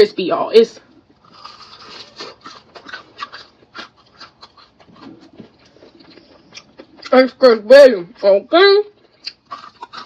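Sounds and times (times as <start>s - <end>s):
crunching of fried chicken: 1.0s - 7.7s, 8.8s - 10.0s.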